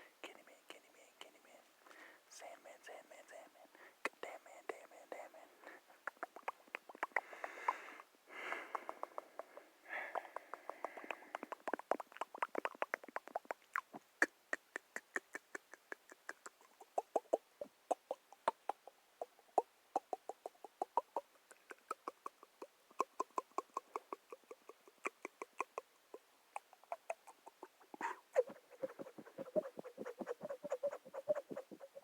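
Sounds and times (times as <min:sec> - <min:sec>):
quick irregular clicks and taps: 0:08.4 - 0:17.5.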